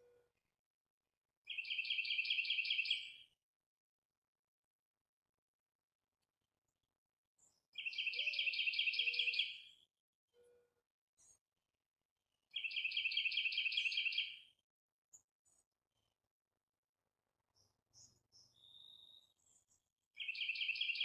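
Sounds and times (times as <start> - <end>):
songbird trilling: 7.8 - 9.5.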